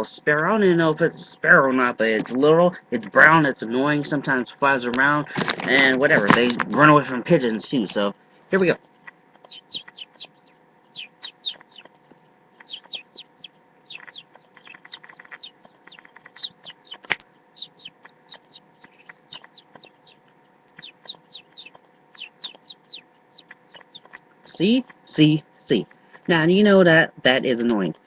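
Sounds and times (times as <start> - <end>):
man imitating bird chirps: 9.5 - 11.9, 12.6 - 15.6.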